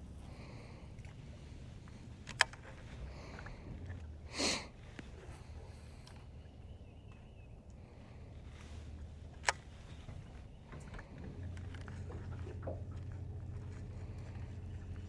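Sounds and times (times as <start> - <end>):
faint low hum: 0.0 - 15.0
person sniffing: 4.3 - 4.7.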